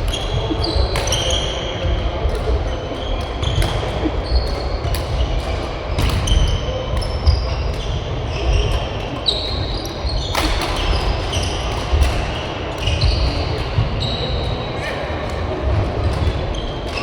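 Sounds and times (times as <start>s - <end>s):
shoes squeaking on court floor: 0.0s - 11.5s.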